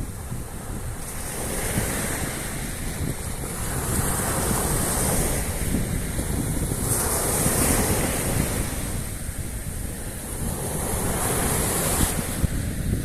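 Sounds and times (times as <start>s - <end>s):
sea surf washing onto shore: 0.0s - 13.0s
wind buffeting microphone: 0.0s - 13.0s.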